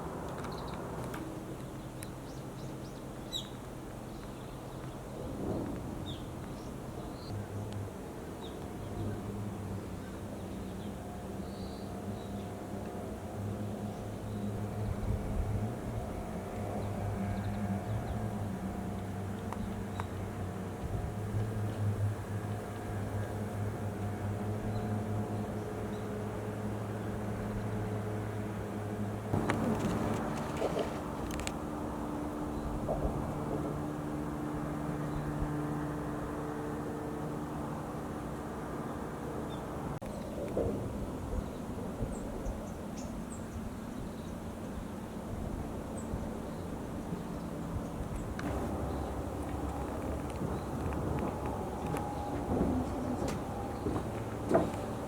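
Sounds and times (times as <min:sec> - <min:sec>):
steady low rumble: 0:47.9 - 0:54.6
machine humming: 0:48.4 - 0:55.0.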